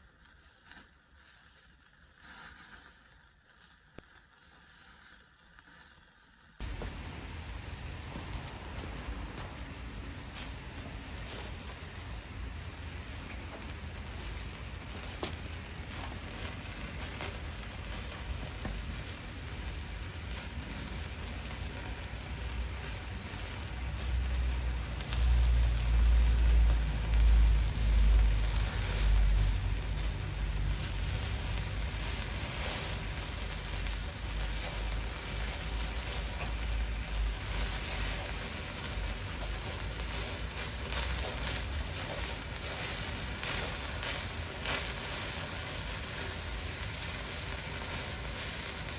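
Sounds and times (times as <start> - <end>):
campfire crackling: 0.0 - 48.9
meat sizzling on a grill: 0.0 - 48.9
low rumble: 6.6 - 20.3, 22.5 - 45.0
rain falling: 6.6 - 48.9.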